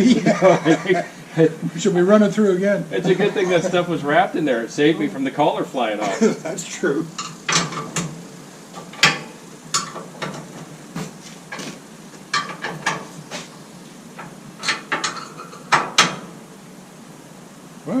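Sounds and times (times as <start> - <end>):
metal tools clanking: 7.1 - 8.1, 8.8 - 10.6, 12.3 - 13.2, 14.2 - 16.3.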